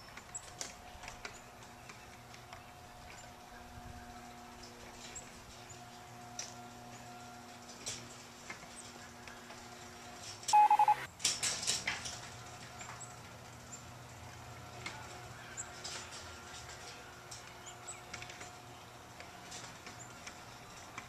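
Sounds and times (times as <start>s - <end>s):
rapid electronic beeping: 10.6s - 11.1s.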